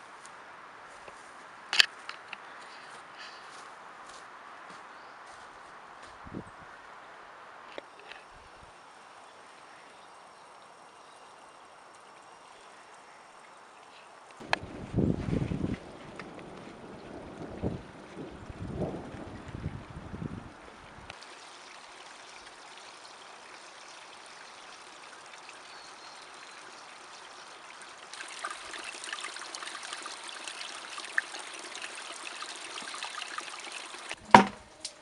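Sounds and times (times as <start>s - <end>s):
stream water trickling: 5.0s - 35.0s
sharp knock: 34.2s - 34.6s.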